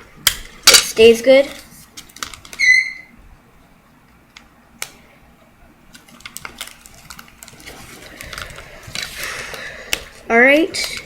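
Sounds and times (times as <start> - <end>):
paper and tape crinkling: 5.9 - 11.0.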